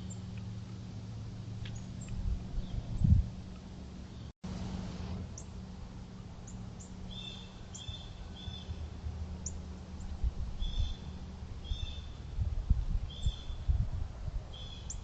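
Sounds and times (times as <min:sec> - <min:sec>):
steady low rumble: 0:00.0 - 0:15.0
small birds chirping: 0:06.4 - 0:12.4, 0:13.1 - 0:13.8, 0:14.5 - 0:15.0.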